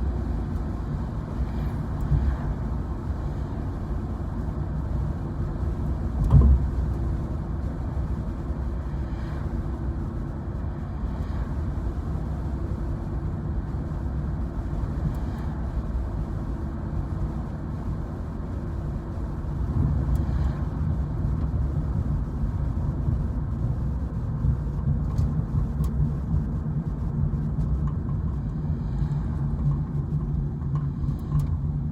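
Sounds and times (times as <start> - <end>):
road and engine rumble in car: 0.0 - 31.9.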